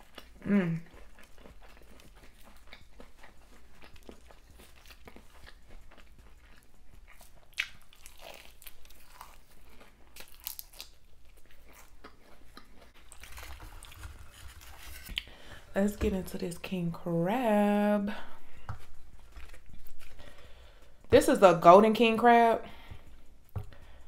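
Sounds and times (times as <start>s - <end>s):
crunchy chewing: 0.0s - 15.5s, 18.5s - 21.1s.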